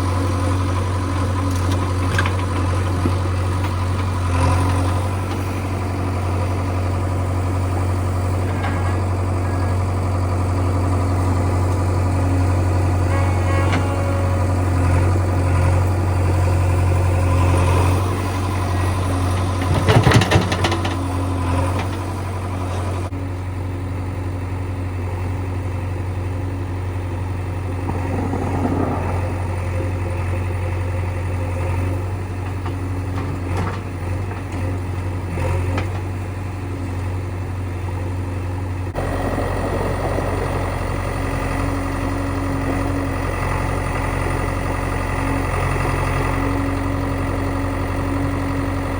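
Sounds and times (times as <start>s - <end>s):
heavy diesel engine running: 0.0s - 48.9s
clatter of knocks: 19.3s - 22.1s, 32.4s - 34.8s.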